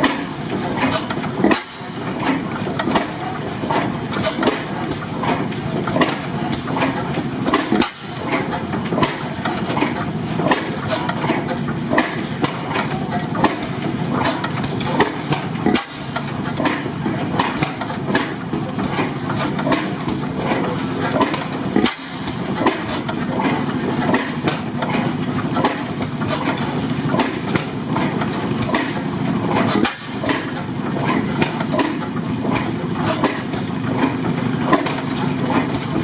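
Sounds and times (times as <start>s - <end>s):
sharp engine clicks and knocks: 0.0s - 36.0s
stationary gas engines running: 0.0s - 36.0s.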